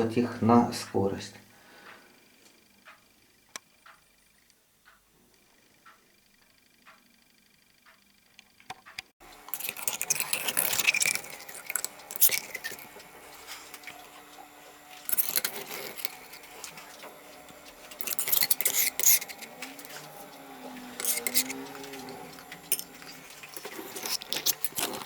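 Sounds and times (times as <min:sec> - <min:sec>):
steady low hum: 0:09.2 - 0:25.0
metal parts jangling and clinking: 0:21.0 - 0:22.0.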